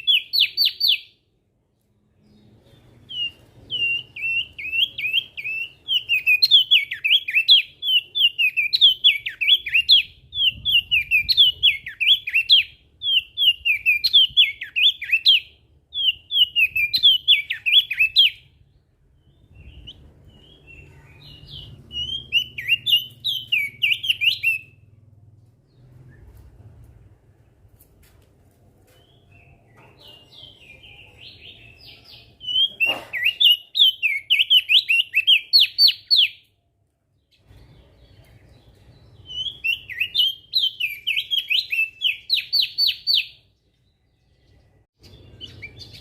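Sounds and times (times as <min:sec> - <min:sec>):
bird singing twittering phrases: 0:00.0 - 0:01.2, 0:02.2 - 0:25.0, 0:29.0 - 0:36.6, 0:37.2 - 0:46.0.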